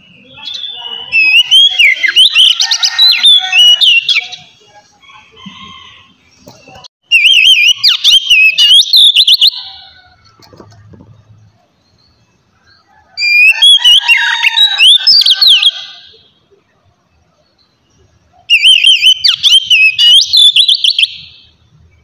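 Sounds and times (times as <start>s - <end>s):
bird singing whistled song: 0.0s - 4.5s, 7.1s - 9.9s, 13.2s - 16.0s, 17.5s - 22.0s.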